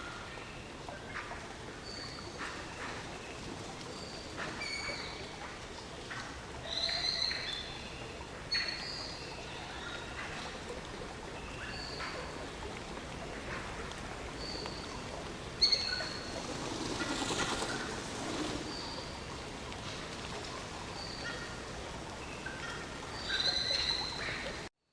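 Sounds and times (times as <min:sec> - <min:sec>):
birds chirping: 0:06.7 - 0:24.6
rain hissing: 0:12.2 - 0:22.2.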